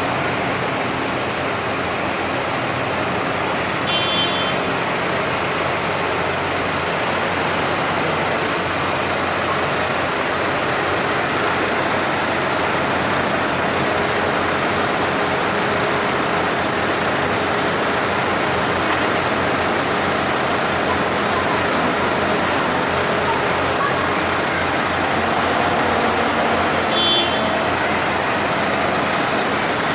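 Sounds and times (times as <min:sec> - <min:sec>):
constant rushing noise: 0:00.0 - 0:29.9
tractor engines running: 0:00.0 - 0:29.9.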